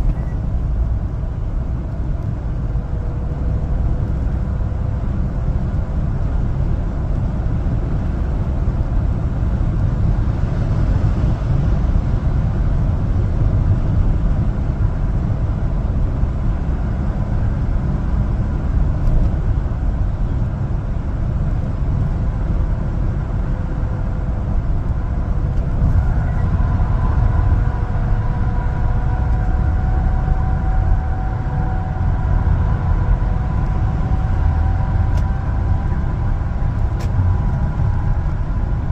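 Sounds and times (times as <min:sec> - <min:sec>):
truck engine and road noise: 0:00.0 - 0:38.9
faint whining tones: 0:25.4 - 0:38.8.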